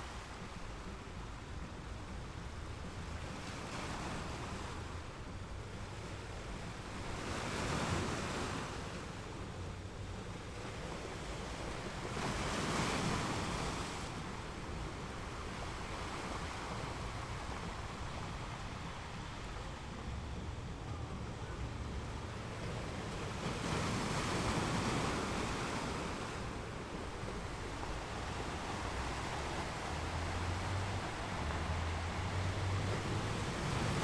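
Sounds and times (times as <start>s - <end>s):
waves breaking: 0.0s - 34.0s
surf rushing: 11.4s - 34.0s.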